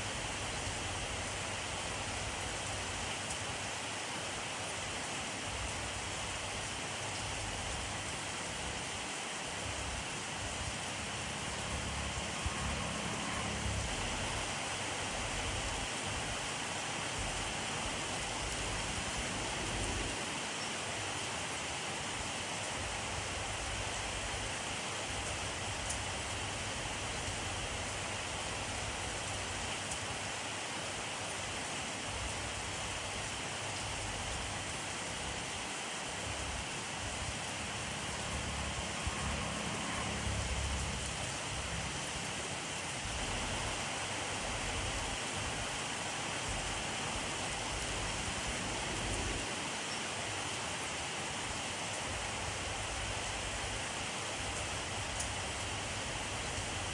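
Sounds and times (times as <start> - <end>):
steady rainfall: 0.0 - 56.9.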